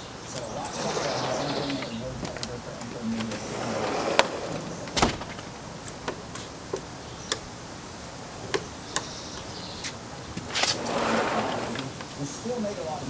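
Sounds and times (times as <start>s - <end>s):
faint steady background noise: 0.0s - 13.0s.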